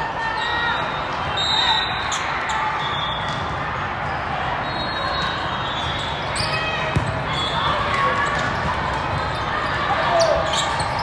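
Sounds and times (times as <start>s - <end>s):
sneakers squeaking on court: 4.8s - 11.0s
balls struck and bouncing: 6.9s - 7.3s.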